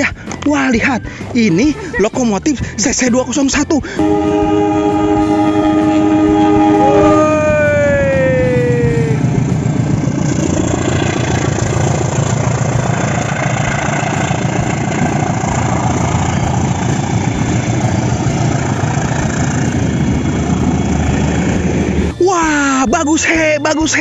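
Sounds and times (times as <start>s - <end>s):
diesel locomotive engine running: 0.0s - 22.8s
train coaches rolling on rails: 4.0s - 22.2s.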